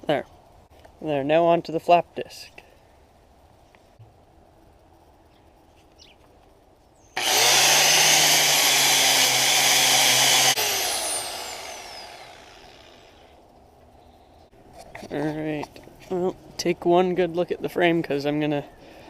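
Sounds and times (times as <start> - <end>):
angle grinder grinding steel: 7.2 - 13.3
grinder spinning down whine: 7.2 - 13.4.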